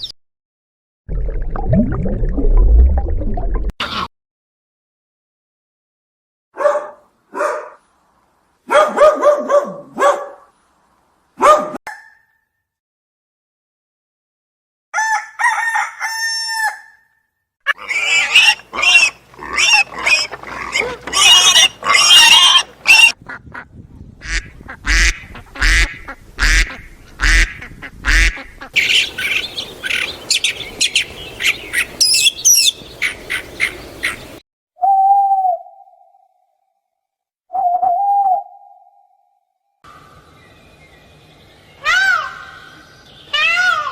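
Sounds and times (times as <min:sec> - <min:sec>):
waterfowl honking and quacking: 0:17.7 - 0:34.4.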